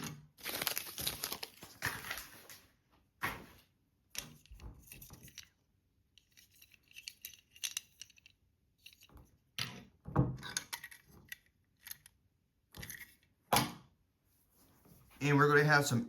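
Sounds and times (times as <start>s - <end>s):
packaging crinkling and rustling: 0.3s - 2.8s.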